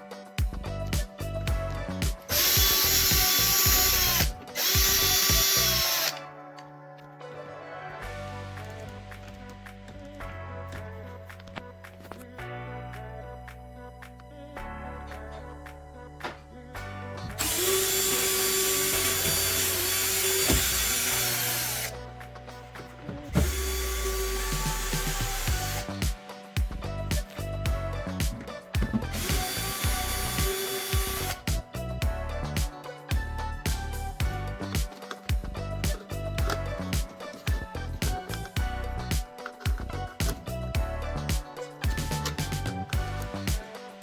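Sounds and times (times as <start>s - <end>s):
cordless power drill running: 2.3s - 6.2s, 17.4s - 21.9s, 23.4s - 25.9s, 29.2s - 31.4s.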